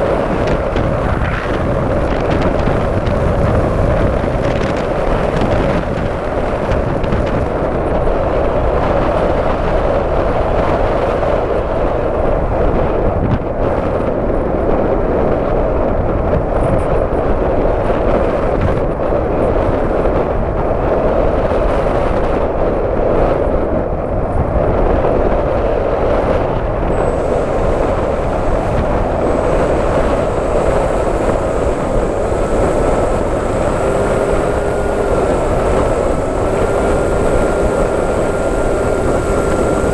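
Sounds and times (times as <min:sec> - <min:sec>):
model aircraft motor and propeller: 0:00.0 - 0:15.0, 0:26.2 - 0:39.9
wind rush: 0:00.0 - 0:39.9
thin high whine: 0:26.8 - 0:39.9.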